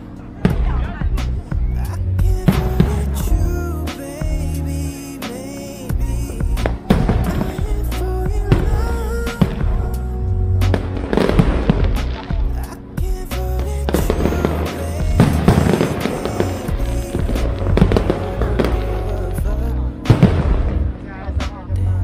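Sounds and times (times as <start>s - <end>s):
music with heavy bass: 0.0s - 22.0s
fireworks bangs: 6.6s - 7.8s, 10.7s - 12.5s, 13.9s - 19.1s, 20.1s - 21.0s.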